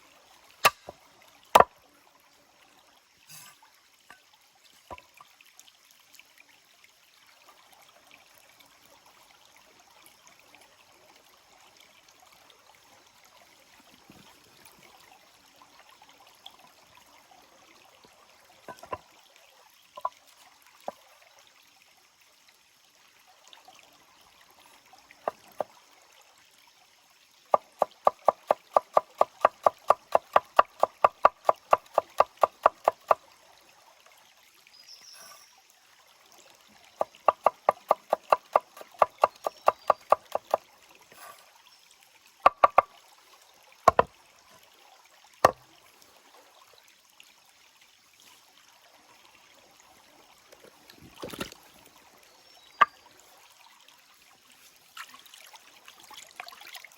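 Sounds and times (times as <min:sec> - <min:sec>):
faint running stream: 0:00.0 - 0:56.9
rapid knocking: 0:37.1 - 0:40.6.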